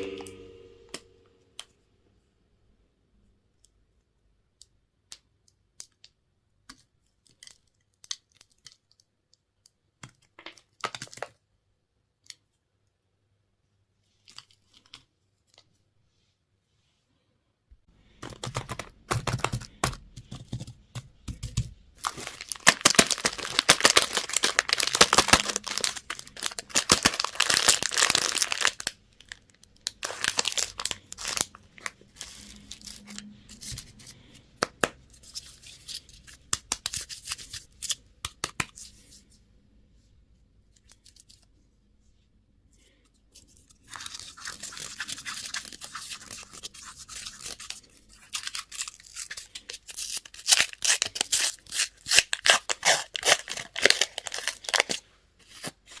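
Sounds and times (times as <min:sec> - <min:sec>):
plastic packaging crinkling: 0:22.0 - 0:33.8, 0:43.8 - 0:56.0.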